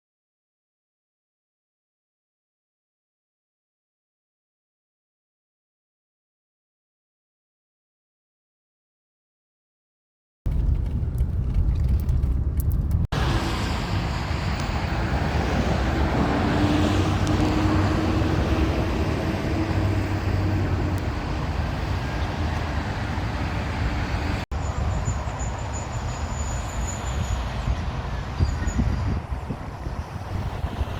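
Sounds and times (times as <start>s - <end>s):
highway traffic rumble: 10.5s - 30.9s.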